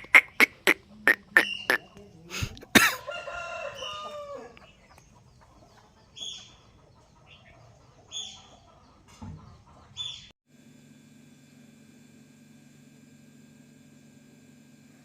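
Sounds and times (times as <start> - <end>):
chicken calling: 0.0 - 10.3.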